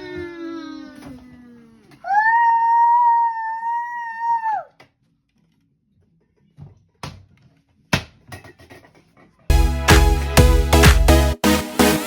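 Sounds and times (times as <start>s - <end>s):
child squealing: 0.0s - 4.8s.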